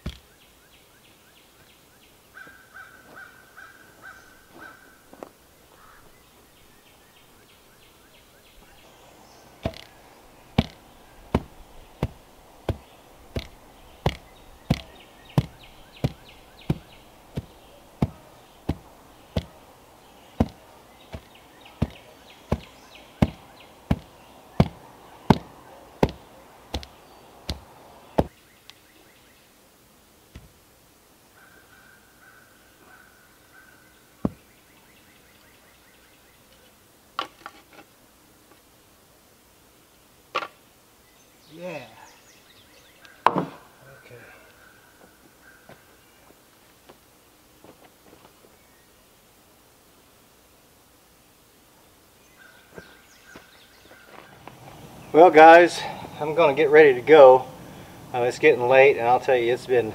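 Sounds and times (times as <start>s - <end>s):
tool striking wood: 9.6s - 10.0s, 10.6s - 19.6s, 20.4s - 28.3s.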